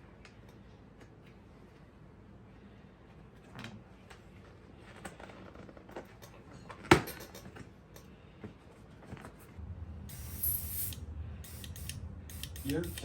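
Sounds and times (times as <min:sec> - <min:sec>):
short hiss: 0:10.1 - 0:13.0.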